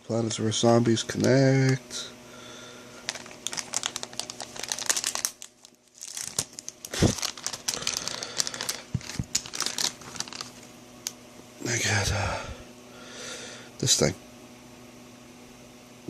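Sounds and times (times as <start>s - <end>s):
plastic packaging crinkling and tearing: 3.0s - 10.7s.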